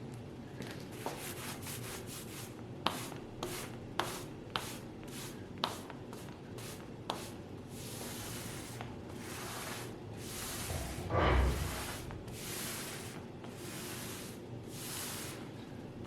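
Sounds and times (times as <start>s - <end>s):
rubbing strokes against a surface: 6.6s - 15.5s.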